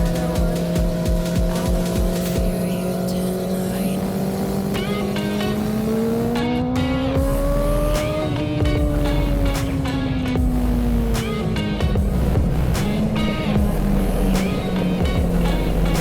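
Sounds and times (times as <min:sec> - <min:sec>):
electronic music: 0:00.0 - 0:16.0
motorcycle engine running: 0:00.0 - 0:16.0.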